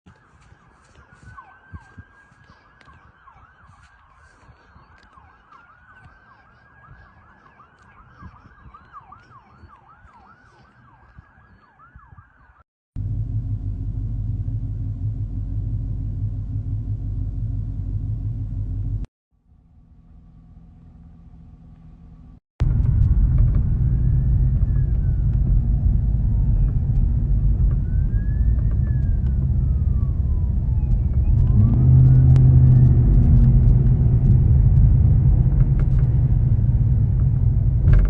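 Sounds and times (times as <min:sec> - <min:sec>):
sirens wailing and yelping: 0:00.1 - 0:12.6, 0:23.4 - 0:36.9
low engine rumble: 0:13.0 - 0:38.0.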